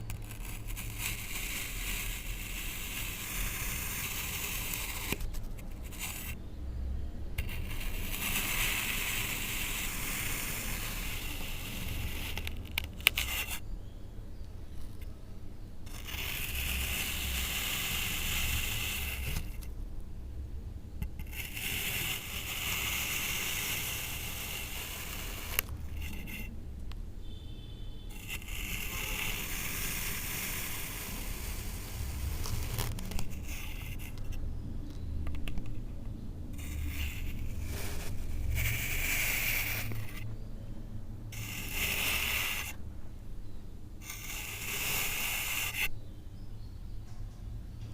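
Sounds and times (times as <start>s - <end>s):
gritty sand scraping: 7.4s - 13.6s, 28.1s - 34.2s, 41.4s - 42.8s, 44.0s - 45.9s.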